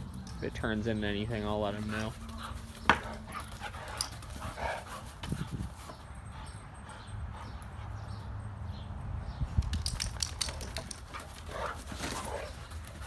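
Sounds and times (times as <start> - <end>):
dogs scuffling: 0.0 - 6.6, 9.8 - 13.0.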